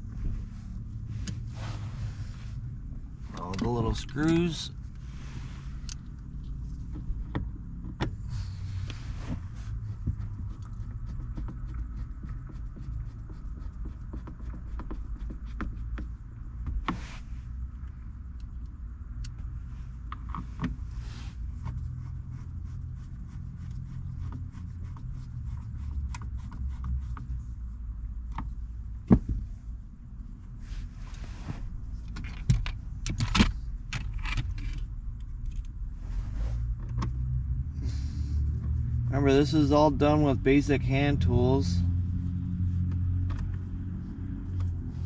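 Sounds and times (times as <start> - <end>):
steady low hum: 0.0 - 45.0
small clicks and taps of parts: 17.8 - 19.5, 32.0 - 35.8.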